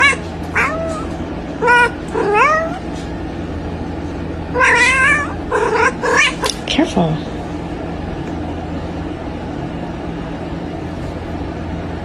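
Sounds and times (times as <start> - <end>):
cats yowling in a fight: 0.0 - 3.0, 4.5 - 6.5.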